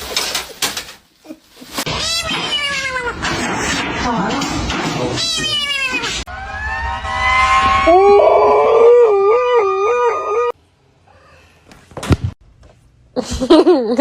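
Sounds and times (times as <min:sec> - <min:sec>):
dog howling: 0:07.8 - 0:10.6.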